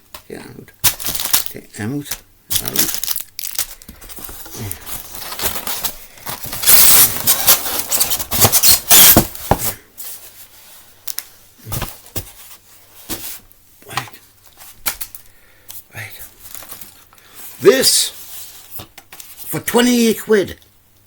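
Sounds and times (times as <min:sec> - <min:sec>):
packaging crinkling and tearing: 0:00.8 - 0:09.7, 0:16.4 - 0:17.0.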